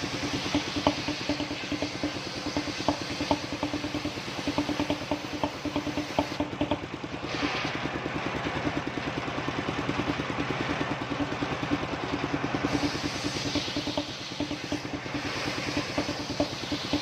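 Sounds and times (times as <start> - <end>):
saw blade rasping through log: 0.0 - 7.7, 12.7 - 17.0
pulsing engine beat: 0.0 - 17.0.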